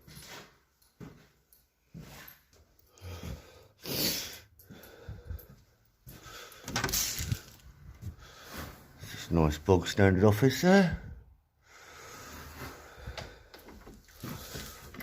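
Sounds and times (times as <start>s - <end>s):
man breathing heavily: 2.7s - 9.2s, 11.0s - 15.0s.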